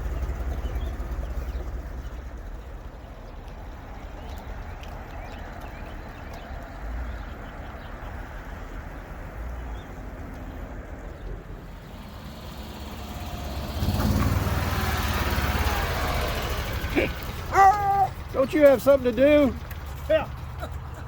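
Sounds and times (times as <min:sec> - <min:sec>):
car engine low rumble: 0:00.0 - 0:21.0.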